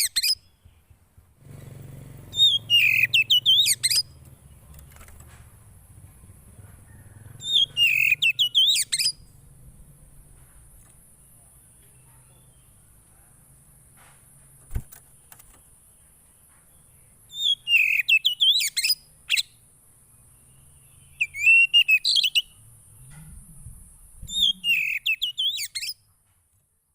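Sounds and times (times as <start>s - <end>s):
songbird warbling chirps: 2.3s - 4.7s, 6.9s - 9.3s, 16.7s - 26.0s.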